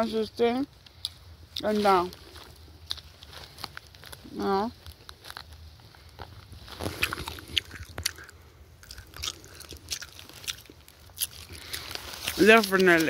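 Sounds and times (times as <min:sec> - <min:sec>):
person chewing hard corn kernels: 0:00.9 - 0:13.0.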